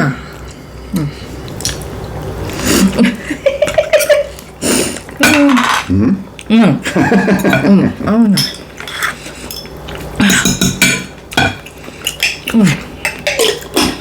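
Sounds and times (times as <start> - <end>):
cutlery scraping on a plate: 8.4 - 14.0.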